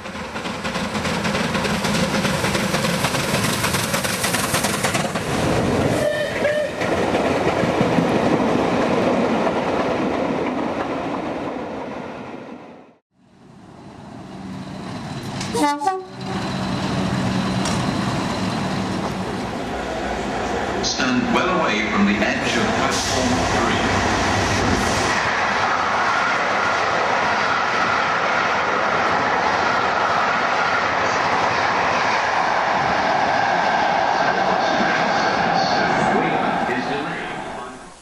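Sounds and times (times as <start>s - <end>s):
train passing: 0.0s - 38.0s
train warning call: 6.0s - 6.9s, 15.2s - 19.2s.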